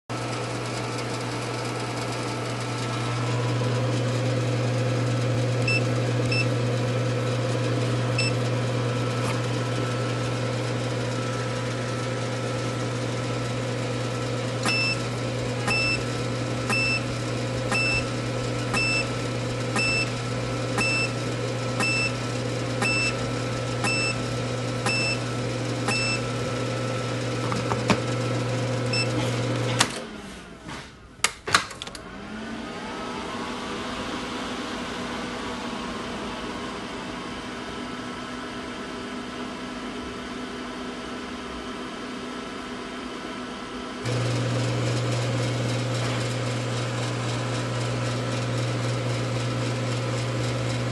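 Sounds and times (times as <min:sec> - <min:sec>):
machine low hum: 0:00.1 - 0:30.6, 0:31.8 - 0:50.9.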